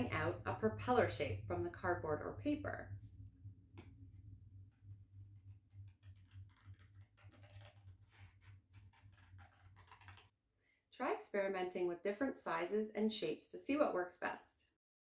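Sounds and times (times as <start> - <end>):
low steady hum: 0.0 - 10.3.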